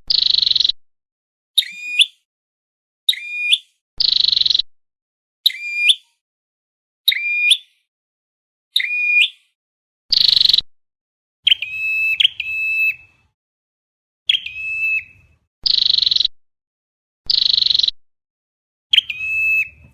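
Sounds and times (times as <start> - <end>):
recorded bird calls: 0.0 - 0.8, 1.6 - 2.3, 3.1 - 4.7, 5.4 - 6.2, 7.1 - 7.9, 8.7 - 10.7, 11.4 - 13.3, 14.3 - 16.3, 17.3 - 18.0, 18.9 - 19.9.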